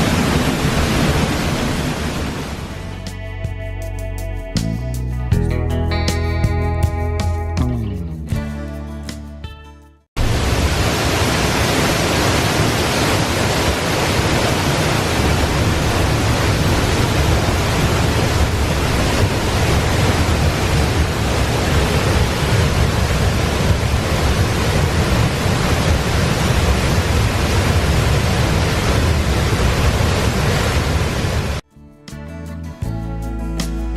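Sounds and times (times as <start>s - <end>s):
waterfall rushing: 0.0s - 2.9s, 10.2s - 31.6s
background music: 2.7s - 10.0s, 31.7s - 33.9s.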